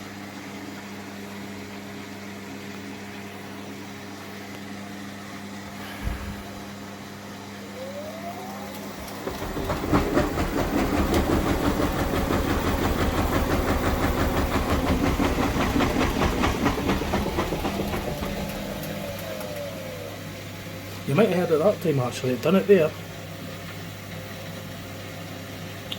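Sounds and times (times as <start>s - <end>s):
washing machine churning: 0.0s - 25.9s
motor whine: 5.6s - 13.3s, 17.2s - 21.6s.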